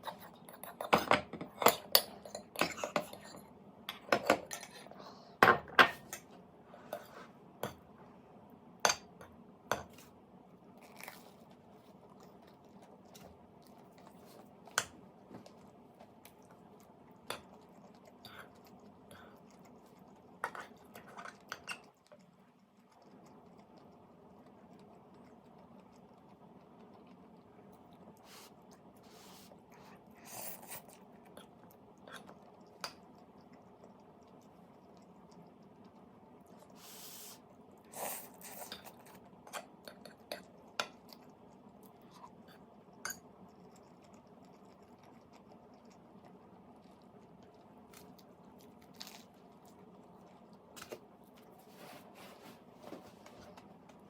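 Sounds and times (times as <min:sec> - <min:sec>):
crunchy chewing: 0:10.8 - 0:51.8.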